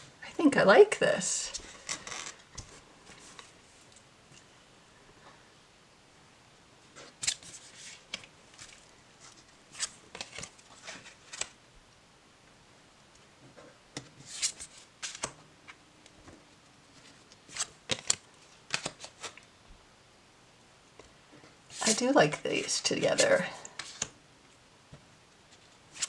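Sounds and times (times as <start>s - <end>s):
cards snapping and rustling: 14.3s - 15.4s, 17.5s - 19.4s.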